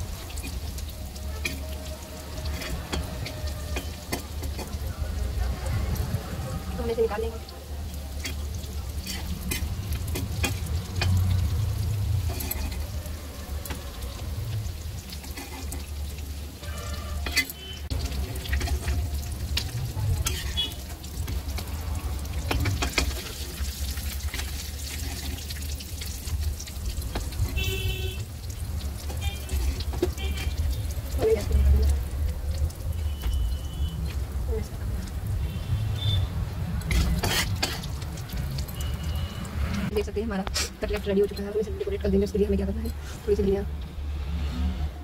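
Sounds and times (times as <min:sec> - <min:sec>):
cutlets sizzling in hot oil: 0:00.0 - 0:44.3
metal spatula scraping a pan: 0:00.2 - 0:04.8, 0:08.1 - 0:11.4, 0:12.1 - 0:13.9, 0:14.7 - 0:20.9, 0:22.3 - 0:26.2, 0:29.0 - 0:30.8, 0:36.7 - 0:38.0.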